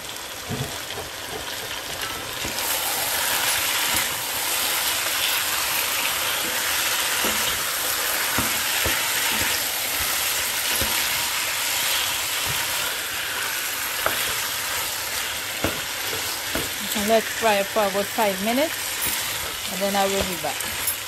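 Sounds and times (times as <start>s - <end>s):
chicken sizzling in hot oil: 0.0s - 21.0s
spatula stirring and knocking pot: 5.3s - 17.6s.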